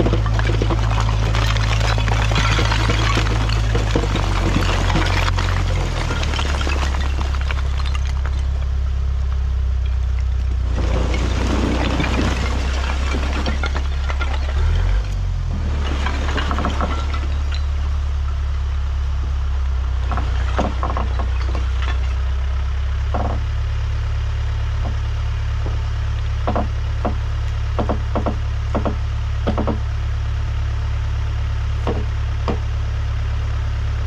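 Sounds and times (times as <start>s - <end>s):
clunks and knocks: 0.0s - 18.4s, 20.0s - 22.2s, 23.1s - 23.6s, 26.4s - 29.9s, 31.8s - 32.7s
diesel engine running: 0.0s - 34.0s.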